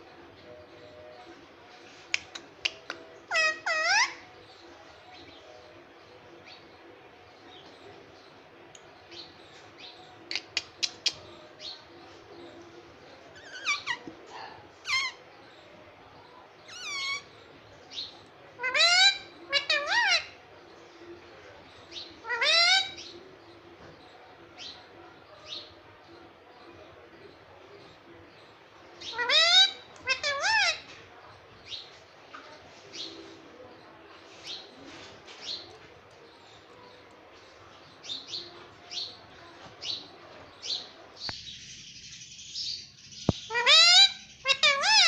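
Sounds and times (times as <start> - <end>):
parrot squawking: 3.3 - 4.2, 13.4 - 15.2, 16.7 - 17.3, 18.6 - 20.4, 22.2 - 23.0, 29.0 - 30.9, 43.5 - 45.0.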